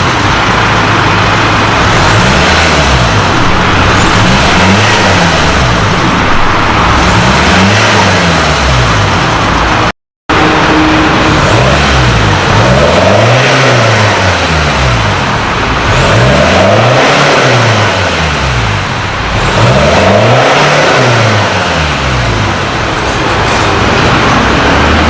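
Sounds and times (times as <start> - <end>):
diesel engine revving: 0.0 - 25.0.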